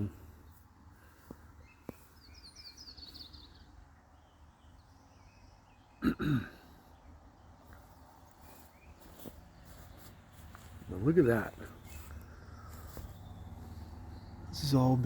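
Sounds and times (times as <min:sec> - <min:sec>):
person clearing throat: 0:06.0 - 0:06.6.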